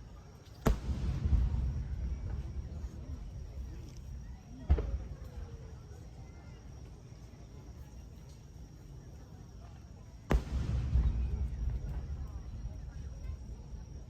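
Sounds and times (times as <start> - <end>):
fireworks booming: 0.6 - 5.9, 10.3 - 14.0.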